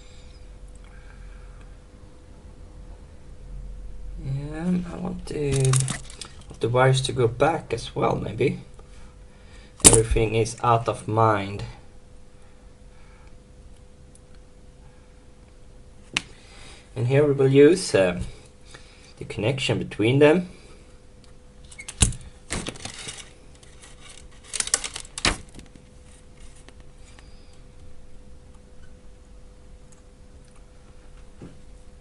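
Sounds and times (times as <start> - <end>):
faint steady hum: 0.0 - 32.0
metal parts clicking and clinking: 5.4 - 6.5, 21.7 - 25.3.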